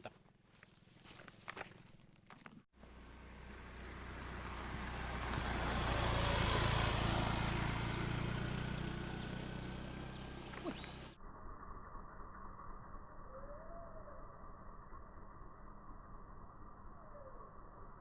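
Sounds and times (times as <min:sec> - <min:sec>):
motor vehicle passing by: 0:02.8 - 0:11.2.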